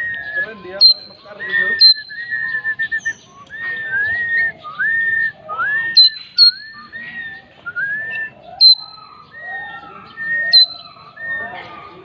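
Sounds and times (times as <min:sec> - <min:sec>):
sharp high bird notes: 0:00.0 - 0:04.0
bird whistling clear notes: 0:00.0 - 0:11.6.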